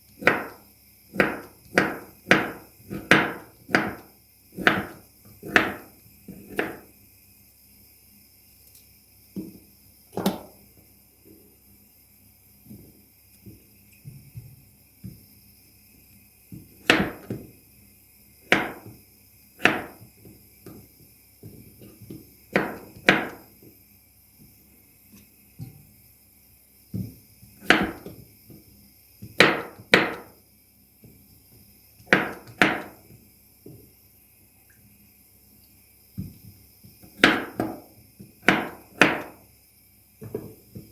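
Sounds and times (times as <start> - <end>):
sharp knocks on hard surface: 0.2 - 0.6, 1.2 - 4.0, 4.6 - 5.9, 6.5 - 6.8, 16.8 - 17.4, 18.5 - 19.0, 19.6 - 20.1, 22.5 - 23.4, 27.6 - 28.0, 29.3 - 30.4, 32.1 - 33.0, 37.2 - 37.9, 38.5 - 39.4.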